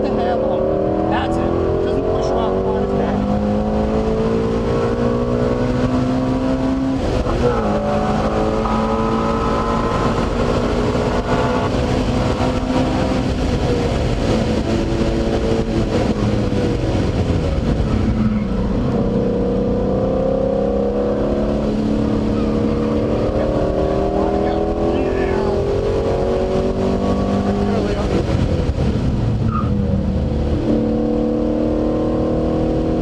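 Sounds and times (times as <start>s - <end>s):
car engine at full throttle: 0.0s - 33.0s
road and wind noise: 0.0s - 33.0s.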